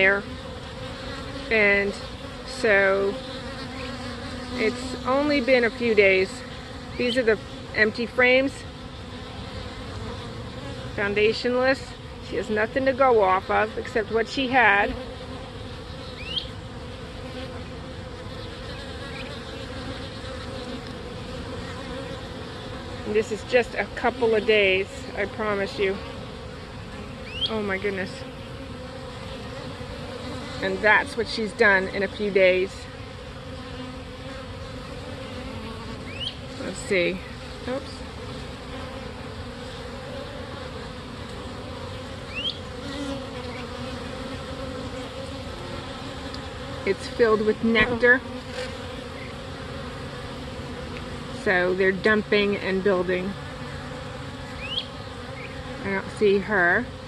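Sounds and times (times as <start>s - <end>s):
honeybee swarm buzzing: 0.0s - 57.0s.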